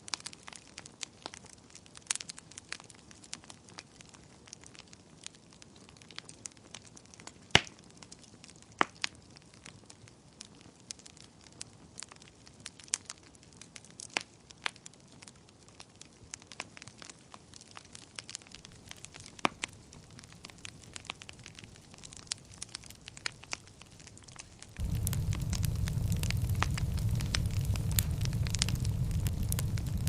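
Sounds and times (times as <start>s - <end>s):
wood fire crackling: 10.4s - 30.0s
faint steady hiss: 18.5s - 30.0s.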